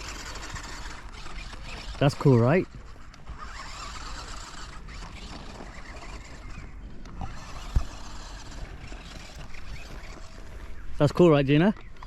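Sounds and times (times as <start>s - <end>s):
toy truck electric motor whirring: 0.0s - 11.0s.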